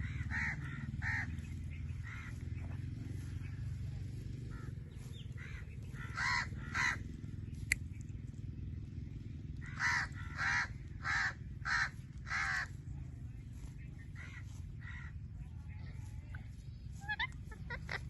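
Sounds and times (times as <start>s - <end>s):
steady low hum: 0.0s - 18.0s
parrot squawking: 17.0s - 18.0s.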